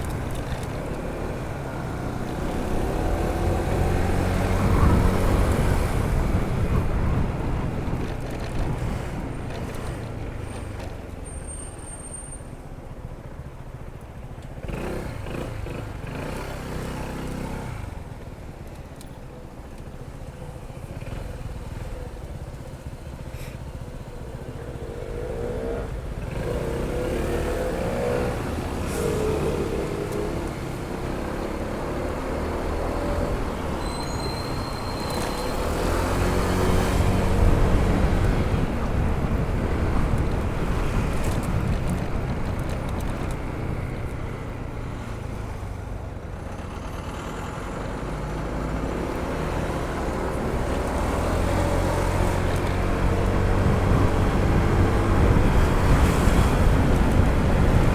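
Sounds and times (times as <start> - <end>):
wind rush: 2.6 - 9.2, 35.6 - 43.9, 52.8 - 57.9.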